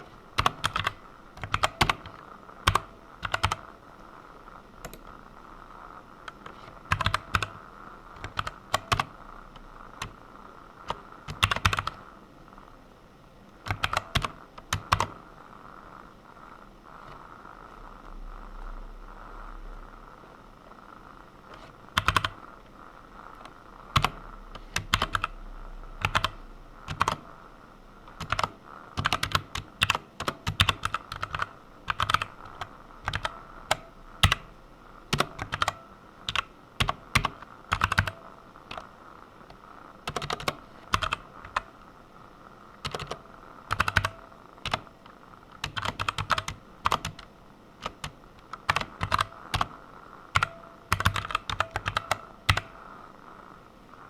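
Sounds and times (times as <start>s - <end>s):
computer keyboard typing: 0.0s - 3.7s, 4.8s - 5.2s, 6.2s - 12.0s, 13.6s - 15.2s, 21.5s - 22.4s, 23.9s - 25.4s, 26.0s - 27.4s, 28.1s - 34.5s, 35.1s - 38.9s, 40.0s - 41.7s, 42.8s - 44.9s, 45.6s - 52.8s.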